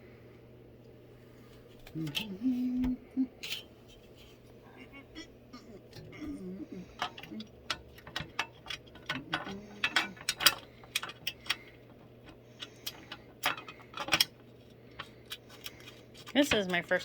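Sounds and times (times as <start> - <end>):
hand tools and screws clicking: 5.9 - 17.0.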